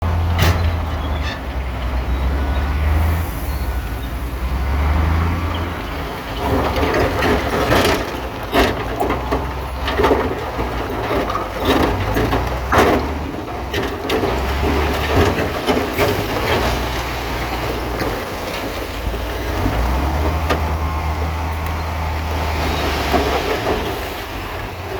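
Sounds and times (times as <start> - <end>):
bulldozer diesel engine humming: 0.0 - 24.9
steel tracks clanking on rock: 5.5 - 24.9.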